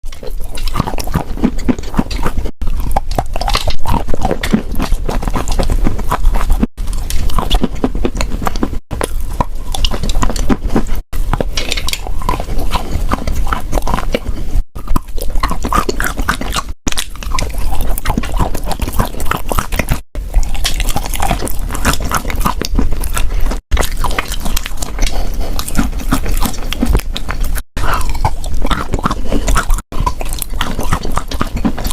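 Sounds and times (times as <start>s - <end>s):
chewing and crunching chalk: 0.0s - 31.9s.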